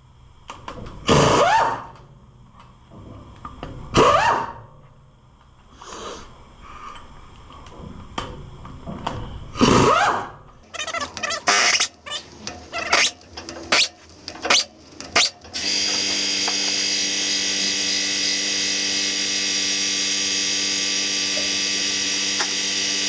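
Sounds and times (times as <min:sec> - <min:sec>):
power drill running: 0:11.0 - 0:23.0.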